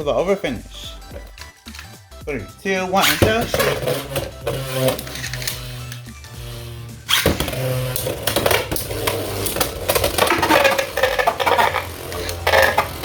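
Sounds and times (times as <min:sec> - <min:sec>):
spinning tops whirring: 0:02.9 - 0:13.0
tops clattering in plastic stadium: 0:07.1 - 0:13.0.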